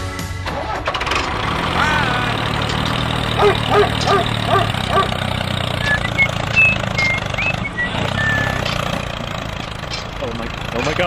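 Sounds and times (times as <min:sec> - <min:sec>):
low engine hum: 0:00.0 - 0:11.0
high whistled chirps: 0:05.8 - 0:08.7.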